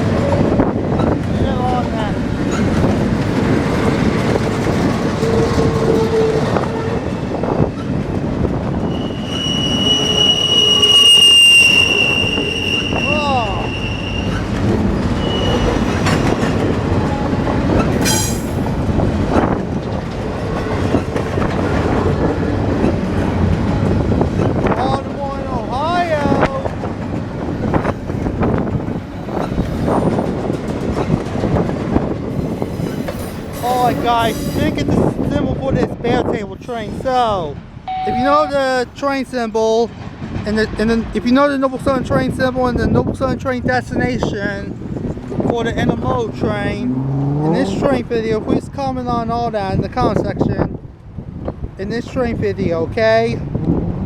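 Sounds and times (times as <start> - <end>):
freight train wheels clattering: 0.0 - 37.8
high-pitched wheel squeal: 8.8 - 16.6, 37.9 - 38.8.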